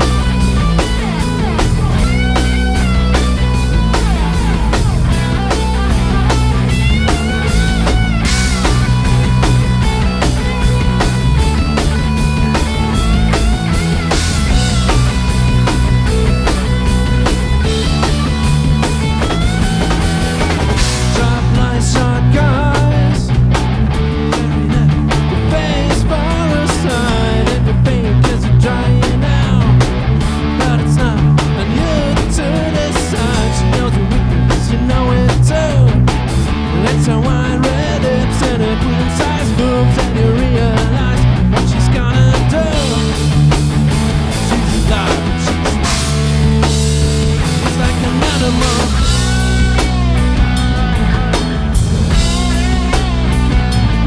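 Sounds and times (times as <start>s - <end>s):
guitar line bending in pitch: 0.0s - 21.8s, 42.7s - 54.0s
bass guitar: 0.0s - 54.0s
drum kit: 0.0s - 54.0s
electric guitars: 0.0s - 54.0s.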